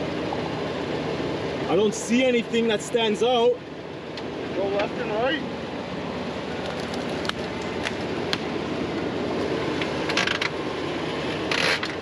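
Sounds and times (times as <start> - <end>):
car engine idling: 0.0 - 12.0
sharp clicks and creaks: 6.6 - 8.0, 9.8 - 10.6, 11.5 - 12.0.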